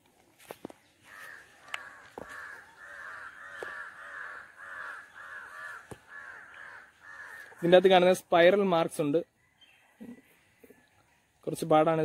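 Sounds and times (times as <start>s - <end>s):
bird calling in harsh notes: 1.0s - 7.8s.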